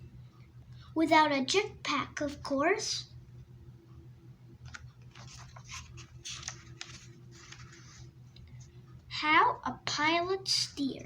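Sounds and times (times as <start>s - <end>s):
faint steady hum: 0.0s - 11.0s
paper rustling: 4.6s - 8.2s
book page clicks: 4.7s - 7.7s.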